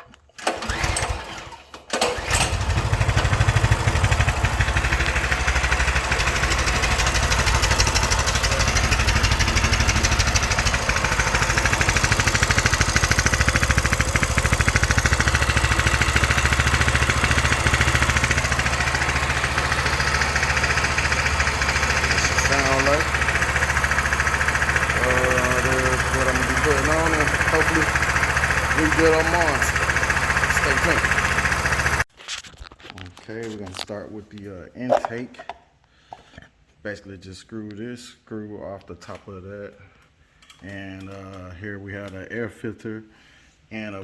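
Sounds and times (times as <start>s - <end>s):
mini bike engine starting and idling: 0.3s - 32.1s.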